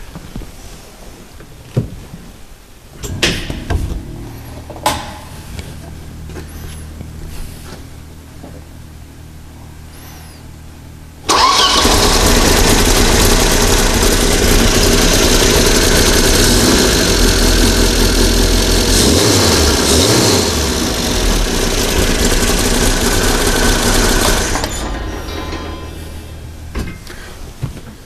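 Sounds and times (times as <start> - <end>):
car engine starting and running: 11.2 - 27.5.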